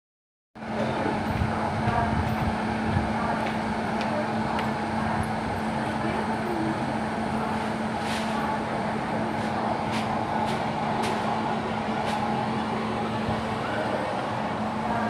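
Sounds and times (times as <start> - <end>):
train rumble: 0.6 - 15.0.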